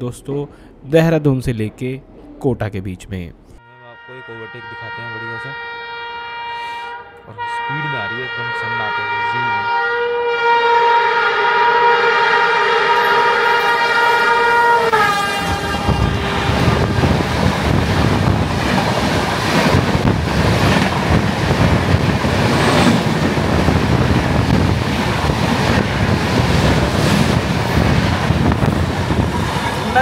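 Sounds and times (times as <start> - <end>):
train horn: 3.6 - 17.3
train wheels rumbling on rail: 13.0 - 30.0.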